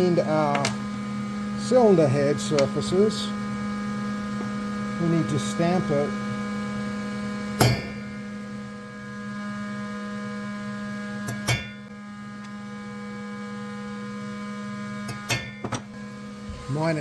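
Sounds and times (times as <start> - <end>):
steady electrical hum: 0.0 - 17.0
hammer blows on steel punches: 7.6 - 8.3.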